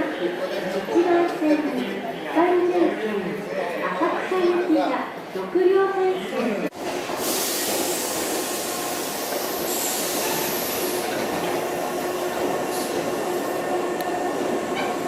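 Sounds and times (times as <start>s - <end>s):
electric train rumble and hiss: 6.8s - 15.0s.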